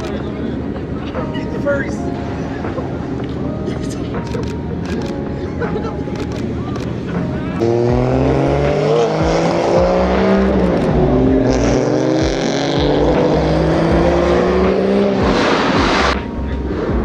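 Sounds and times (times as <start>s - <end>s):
car engines revving: 0.0s - 17.0s
loud rush of noise: 6.0s - 17.0s.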